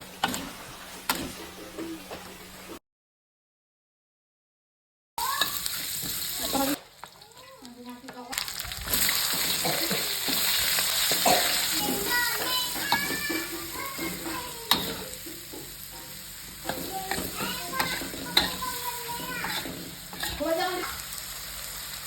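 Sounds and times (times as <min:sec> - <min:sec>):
oil sizzling in a pan: 0:00.0 - 0:02.8, 0:05.2 - 0:22.0
spatula stirring: 0:05.2 - 0:21.0.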